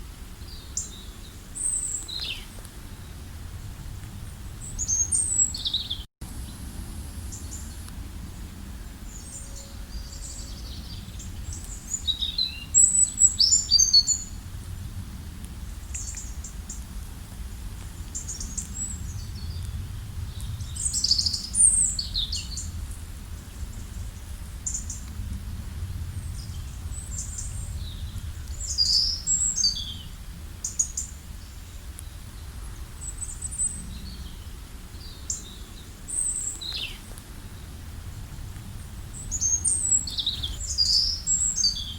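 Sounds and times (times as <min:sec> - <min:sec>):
wild birds singing: 0:00.4 - 0:14.9, 0:15.7 - 0:17.0, 0:17.8 - 0:41.9
steady low rumble: 0:14.0 - 0:41.9.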